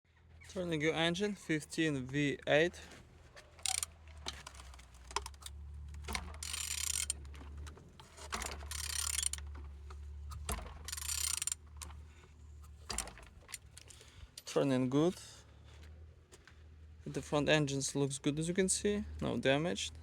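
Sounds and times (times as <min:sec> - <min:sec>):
engine turned with hand tool: 0:02.8 - 0:14.5.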